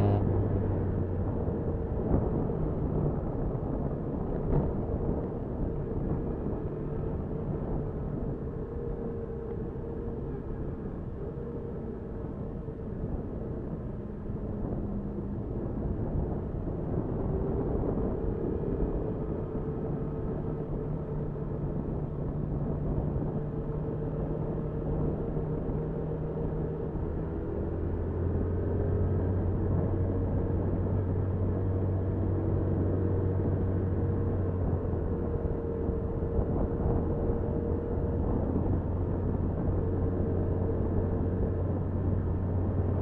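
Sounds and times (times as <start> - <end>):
motorcycle engine rumbling: 0.0 - 1.1.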